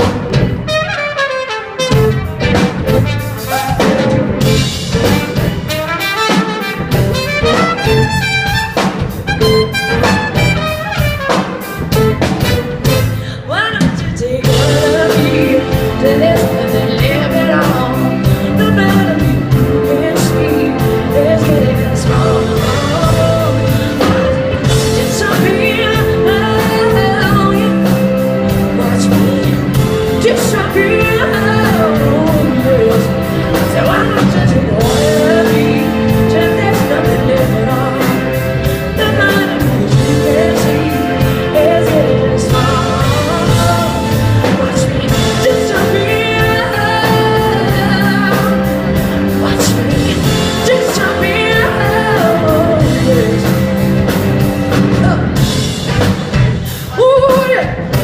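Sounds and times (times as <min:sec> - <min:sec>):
drums keeping a beat: 0:00.0 - 0:58.0
horns: 0:00.0 - 0:58.0
soul-rock band playing: 0:00.0 - 0:58.0.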